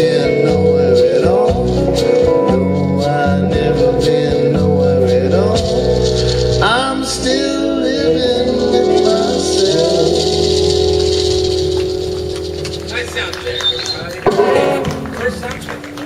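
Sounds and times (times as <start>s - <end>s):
person singing wordless vocal: 0.0s - 10.7s
guitar: 0.0s - 16.0s
live band music: 0.0s - 16.0s.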